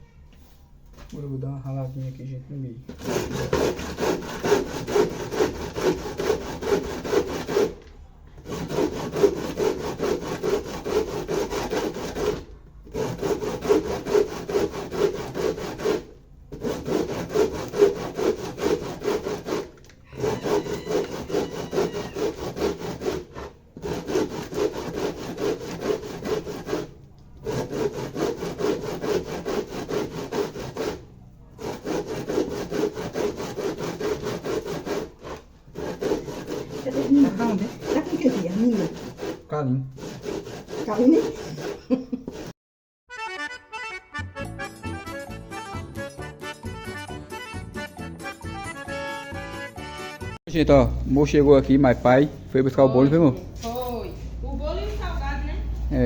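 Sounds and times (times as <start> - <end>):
corn rasping on a hand grater: 2.9 - 7.8, 8.4 - 31.0, 31.6 - 42.6.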